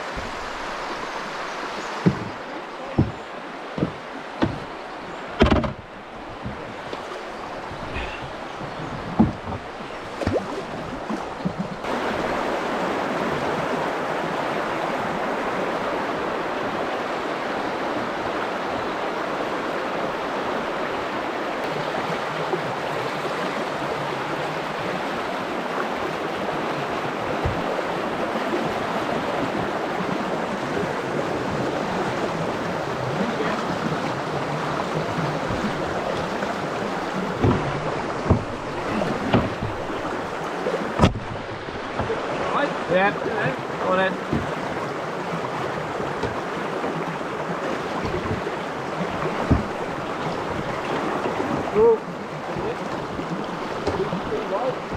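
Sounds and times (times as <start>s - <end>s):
river rapid rushing: 0.0s - 54.9s
light knocks: 2.0s - 4.7s, 37.0s - 42.2s.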